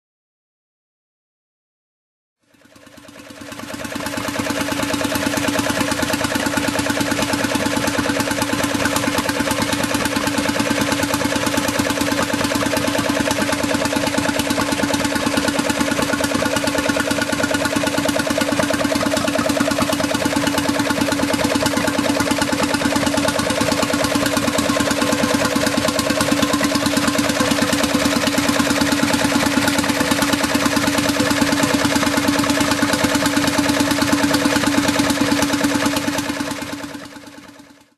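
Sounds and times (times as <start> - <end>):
stationary engine running: 2.4 - 37.9.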